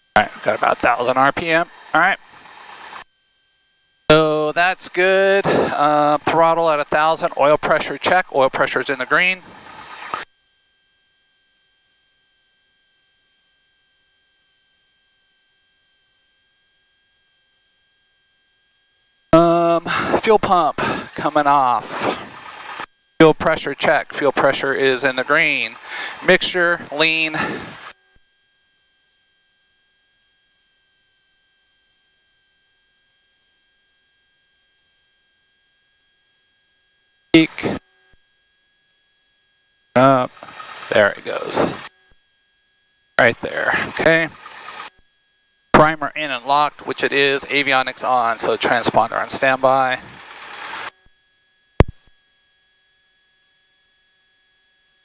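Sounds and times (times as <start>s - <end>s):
faint steady hum: 0.0s - 3.1s, 3.9s - 10.4s, 18.9s - 28.0s, 39.8s - 42.2s, 42.8s - 52.4s
electrical whine high tone: 0.0s - 18.3s, 18.9s - 55.0s
electronic whine dropping and rising: 40.0s - 41.9s, 45.8s - 51.1s
short falling and rising chirp: 40.0s - 42.3s.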